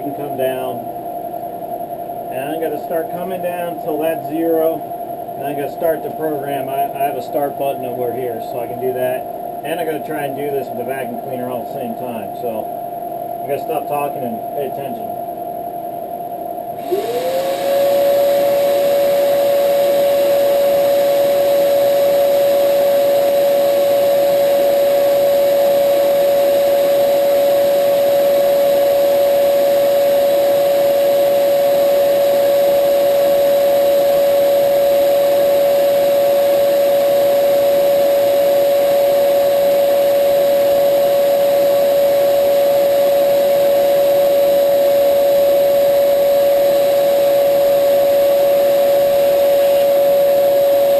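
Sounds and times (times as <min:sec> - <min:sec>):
steady machine hum: 0:00.0 - 0:50.9
vacuum cleaner motor running: 0:16.7 - 0:50.9.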